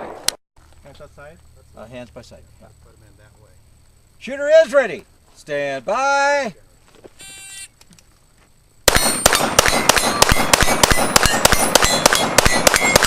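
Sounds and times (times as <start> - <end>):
rapid pistol shots: 8.8 - 13.0
steel targets ringing: 8.9 - 13.0.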